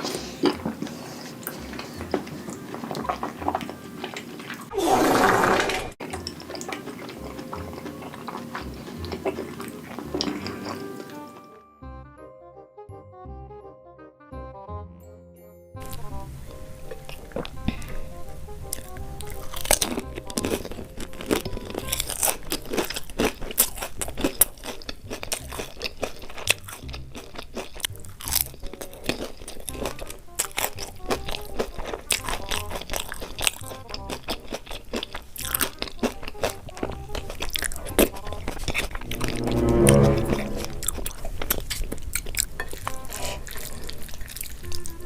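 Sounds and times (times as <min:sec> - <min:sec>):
background music: 0:06.0 - 0:22.9, 0:35.3 - 0:41.3
crunchy bites and chewing: 0:18.7 - 0:38.6.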